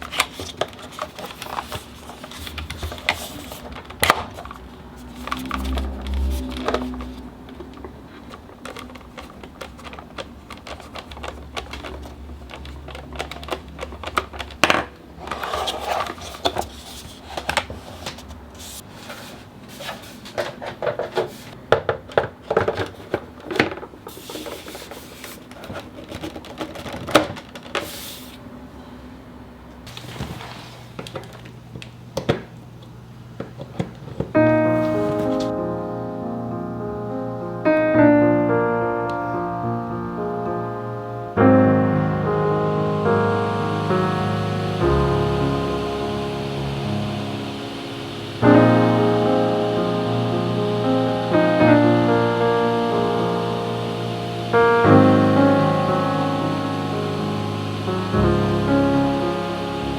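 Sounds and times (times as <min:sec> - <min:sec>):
piano music: 0:00.9 - 0:09.2, 0:34.3 - 0:59.9
hard plastic parts clicking: 0:05.3 - 0:16.7
soft background music: 0:34.4 - 0:59.9.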